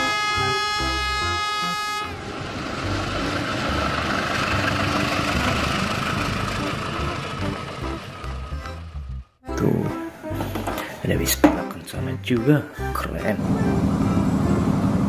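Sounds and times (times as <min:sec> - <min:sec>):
locomotive air horn blast: 0:00.0 - 0:02.2
train rumbling and rattling past: 0:02.1 - 0:09.2, 0:13.4 - 0:15.0.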